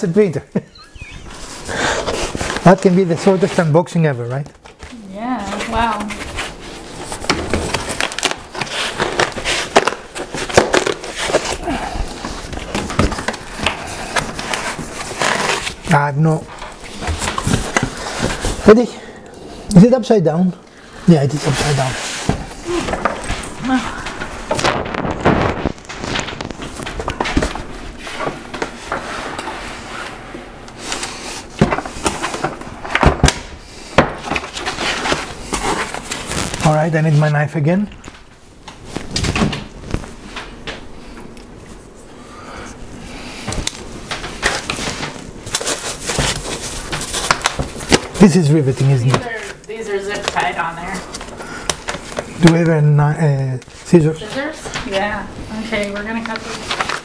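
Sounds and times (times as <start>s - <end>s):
foam and cardboard rustling: 1.2s - 18.8s, 21.1s - 30.1s, 34.0s - 37.5s, 43.5s - 52.7s, 53.8s - 57.0s.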